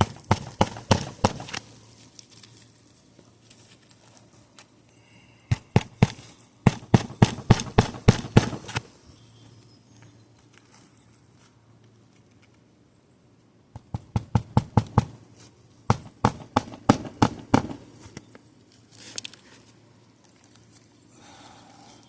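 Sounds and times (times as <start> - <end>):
hammer driving nails: 0.0 - 1.6, 5.5 - 8.8, 15.9 - 17.8.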